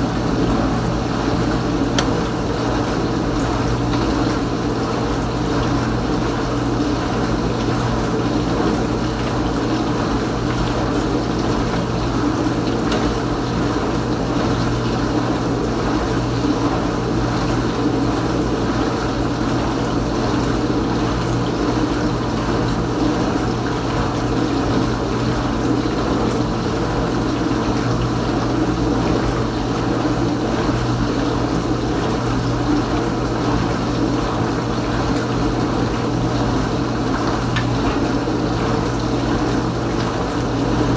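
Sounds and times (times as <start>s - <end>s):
dishwasher pump humming: 0.0s - 40.9s
water spraying inside dishwasher: 8.7s - 16.3s.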